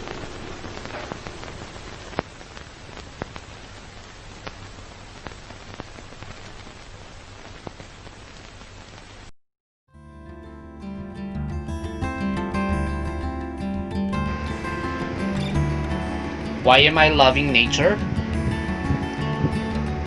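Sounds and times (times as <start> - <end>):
rain falling: 0.0 - 9.3, 14.2 - 20.0.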